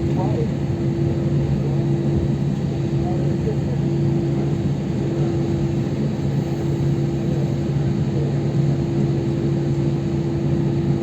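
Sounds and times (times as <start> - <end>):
airliner cabin drone: 0.0 - 11.0.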